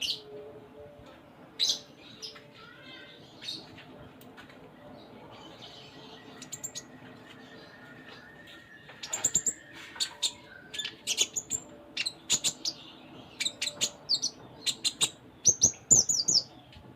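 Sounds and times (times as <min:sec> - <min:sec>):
sunbird singing: 0:05.0 - 0:16.8.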